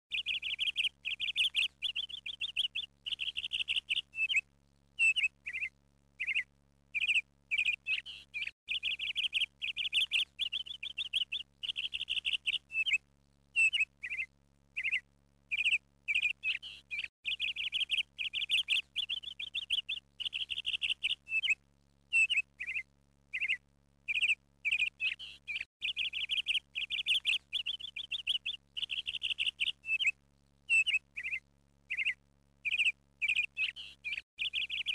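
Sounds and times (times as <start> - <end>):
small bird chirping: 0.1 - 34.9.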